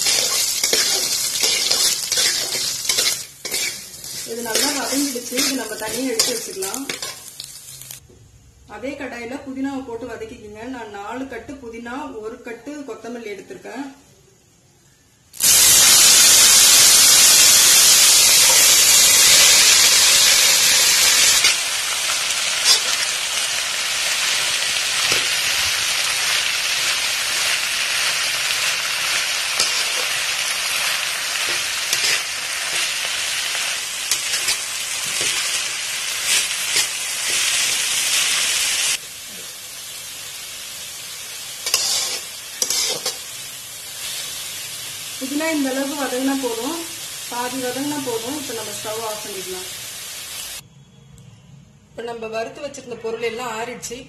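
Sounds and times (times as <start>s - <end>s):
metal spatula scraping a pan: 0.0s - 7.9s, 22.5s - 23.1s, 31.4s - 33.1s, 34.1s - 35.6s, 41.6s - 43.3s
leaves sizzling in hot oil: 0.0s - 8.0s, 15.3s - 50.6s.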